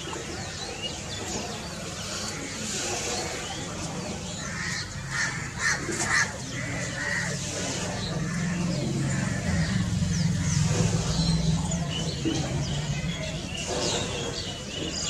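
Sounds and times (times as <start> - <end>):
harsh caw-like bird calls: 4.4 - 10.7.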